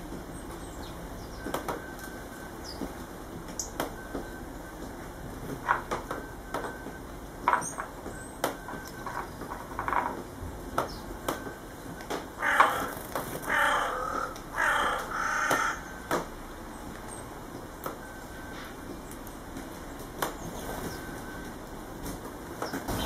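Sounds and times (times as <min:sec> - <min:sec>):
sparrows chirping: 0:00.3 - 0:01.6, 0:02.6 - 0:02.8, 0:10.8 - 0:11.2, 0:12.4 - 0:18.0, 0:20.3 - 0:21.2, 0:22.6 - 0:23.0
harsh drawn-out bird calls: 0:12.4 - 0:17.7.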